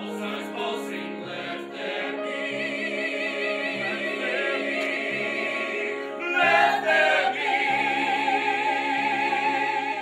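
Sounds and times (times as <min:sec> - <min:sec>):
choir singing held chords: 0:00.0 - 0:10.0.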